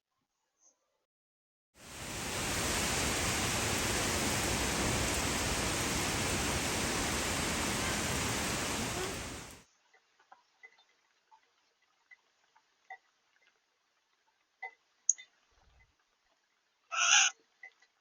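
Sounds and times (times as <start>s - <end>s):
steady even hiss: 1.8s - 9.6s.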